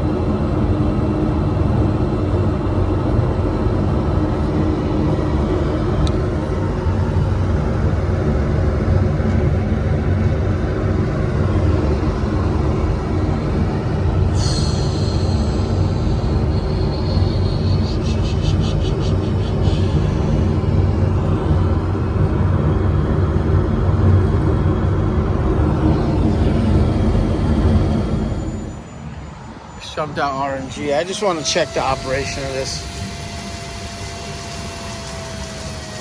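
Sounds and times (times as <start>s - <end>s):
hvac unit rumbling: 0.0s - 36.0s
high whistle: 14.3s - 18.8s, 25.9s - 36.0s.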